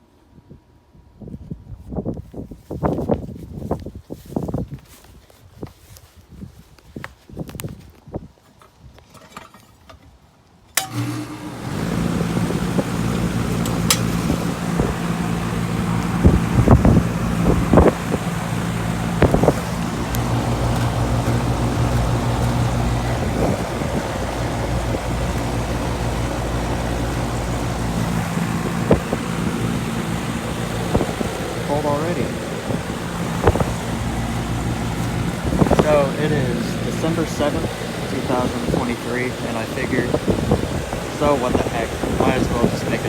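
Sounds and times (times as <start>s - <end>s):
compressor hum and fan: 10.7s - 43.0s
air conditioner switching on: 10.8s - 43.0s.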